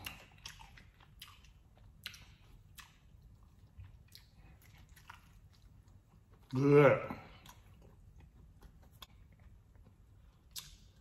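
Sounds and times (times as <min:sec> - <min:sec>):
wet mouth clicks: 0:00.0 - 0:03.3, 0:10.4 - 0:11.0
close-up chewing: 0:00.0 - 0:11.0.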